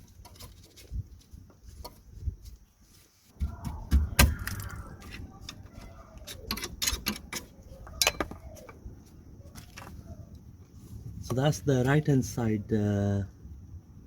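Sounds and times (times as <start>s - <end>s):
metallic clicks of hand tools: 6.2s - 8.4s.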